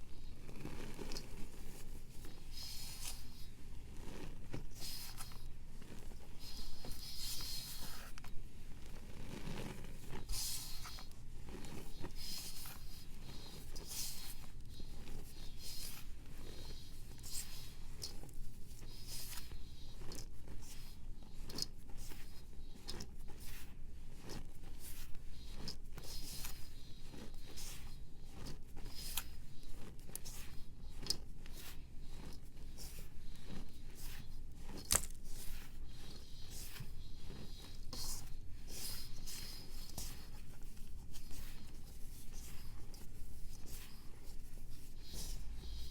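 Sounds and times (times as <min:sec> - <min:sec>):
dry scraping and crunching strokes: 0:24.2 - 0:45.9.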